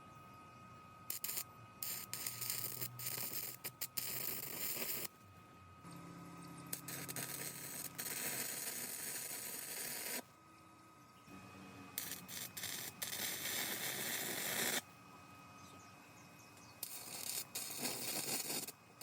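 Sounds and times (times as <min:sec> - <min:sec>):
faint high whine: 0:00.0 - 0:19.0
welding arc crackling: 0:01.1 - 0:05.1, 0:06.7 - 0:10.2, 0:12.0 - 0:14.8, 0:16.8 - 0:18.8.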